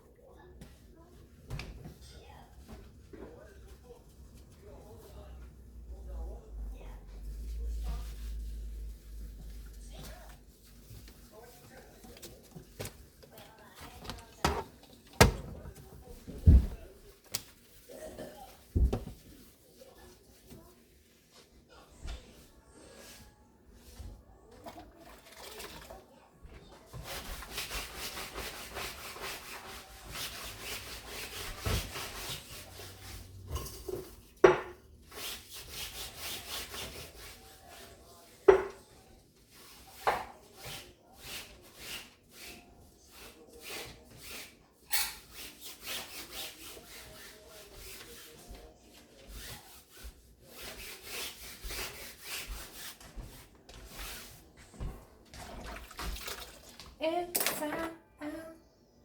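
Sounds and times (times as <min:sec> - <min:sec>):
scrubbing strokes: 0:26.9 - 0:33.4, 0:39.5 - 0:54.6.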